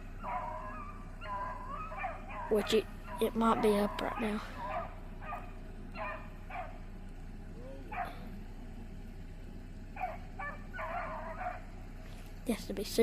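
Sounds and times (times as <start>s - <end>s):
dogs barking: 0.0s - 6.9s, 7.8s - 8.4s, 9.9s - 11.8s.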